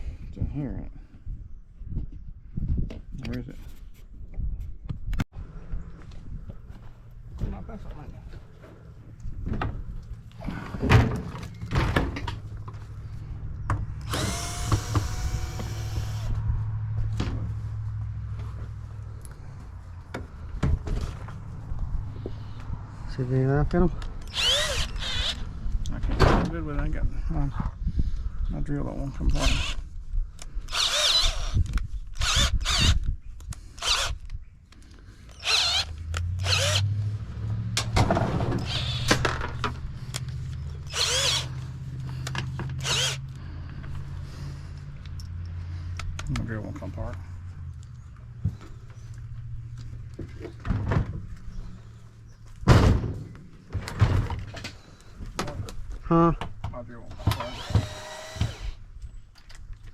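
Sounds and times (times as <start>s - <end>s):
cordless drill whining: 14.0s - 16.4s, 24.2s - 25.5s, 29.3s - 29.8s, 30.7s - 33.1s, 33.8s - 34.3s, 35.3s - 36.9s, 38.6s - 39.2s, 40.8s - 41.6s, 42.8s - 43.4s, 57.2s - 58.8s.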